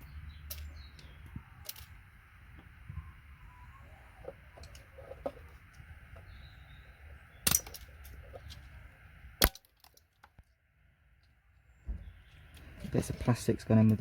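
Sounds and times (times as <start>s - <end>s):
sharp snaps of pins pulled: 7.4s - 8.1s.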